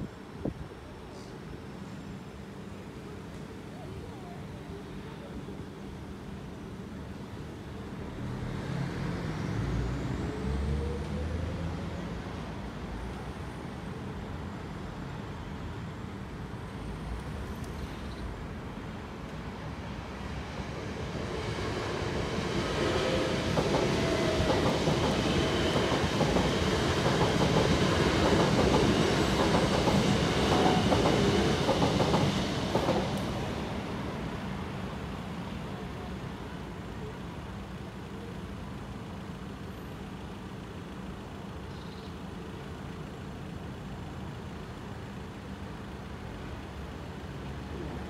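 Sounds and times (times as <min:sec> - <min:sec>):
electric train passing: 0:18.4 - 0:41.6.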